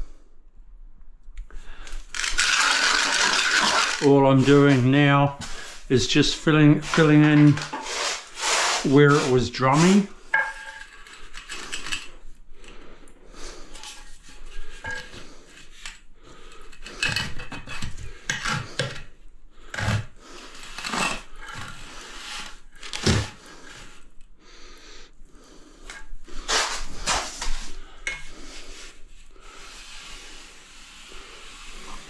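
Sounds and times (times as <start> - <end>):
hand tool scraping on tile: 1.7 - 12.2, 13.5 - 24.1, 25.6 - 32.0.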